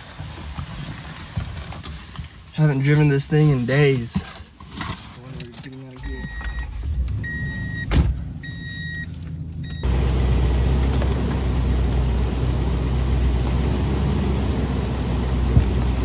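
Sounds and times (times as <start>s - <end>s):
dashboard warning chime: 6.0s - 16.0s
truck engine idling: 6.0s - 16.0s
thump: 7.8s - 8.2s.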